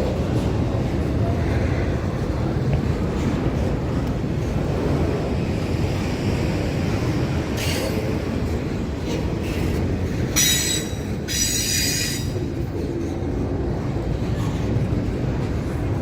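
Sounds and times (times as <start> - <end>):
train rumbling past: 0.0 - 16.0
train wheels squealing: 9.4 - 12.6.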